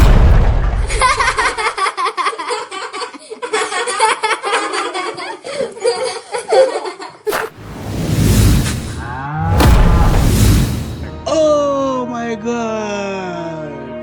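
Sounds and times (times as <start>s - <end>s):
sharp hit: 0.0s - 1.3s, 7.3s - 11.5s
rush of noise: 7.3s - 11.3s.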